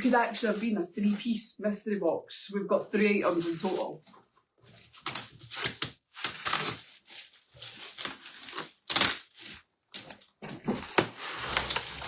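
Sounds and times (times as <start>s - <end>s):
cardboard and wrapping ripping: 4.7s - 12.0s.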